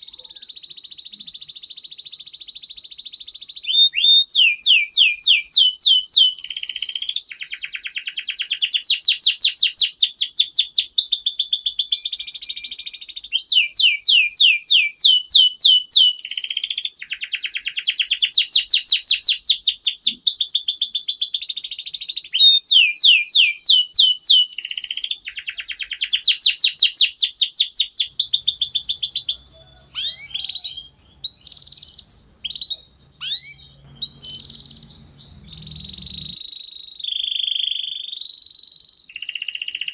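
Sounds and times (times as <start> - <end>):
canary singing rolling trills: 0.0 - 39.9
faint low hum: 28.5 - 36.5.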